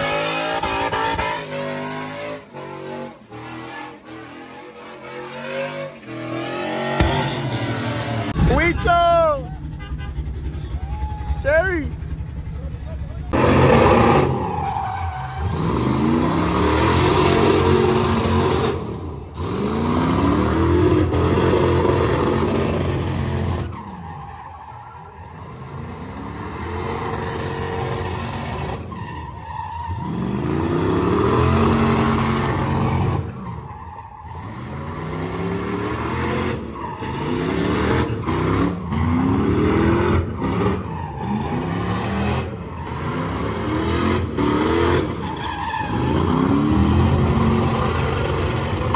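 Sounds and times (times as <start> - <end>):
tires screeching: 0.0 - 48.9
engine revving hard: 15.4 - 23.7, 34.3 - 45.2.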